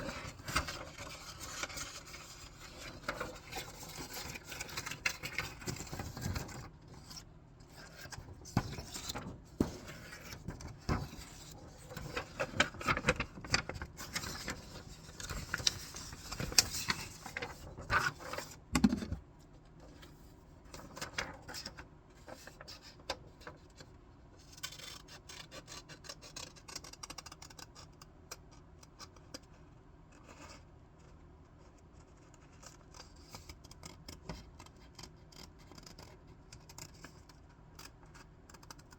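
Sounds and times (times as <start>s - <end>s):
paper rustling: 7.8s - 18.5s.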